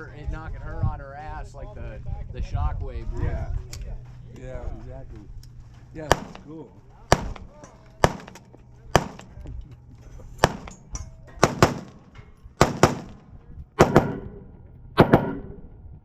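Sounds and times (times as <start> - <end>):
sharp gunshots with echo: 6.0 - 9.4, 10.4 - 10.8, 11.4 - 15.7.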